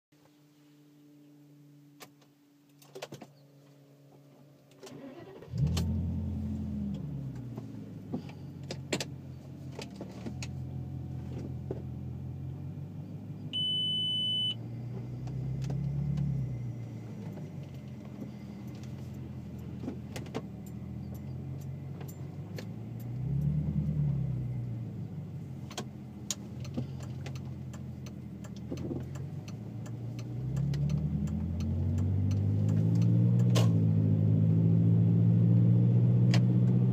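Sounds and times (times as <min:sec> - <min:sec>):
car engine starting and idling: 0:01.6 - 0:36.9
engine revving: 0:05.0 - 0:07.5, 0:28.7 - 0:36.9
short electronic beep: 0:13.5 - 0:14.6.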